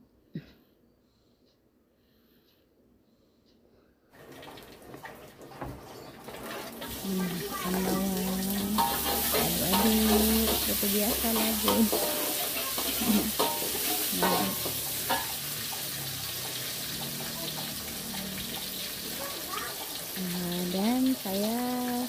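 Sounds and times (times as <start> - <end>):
onion sizzling in hot oil: 4.2 - 22.0
spatula scraping metal pan: 6.4 - 18.8.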